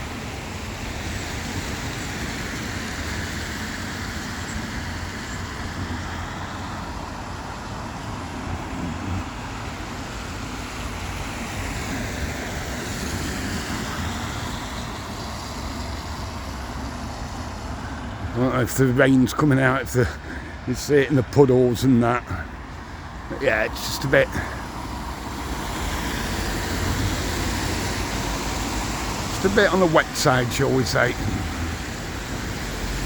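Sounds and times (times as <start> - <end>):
traffic on a wet road: 0.0 - 33.0
tyres hissing: 13.7 - 33.0.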